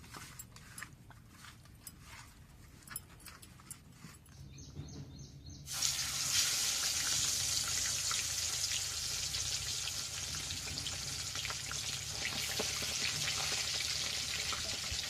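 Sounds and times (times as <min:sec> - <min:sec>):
food sizzling in hot oil: 0:05.7 - 0:15.0.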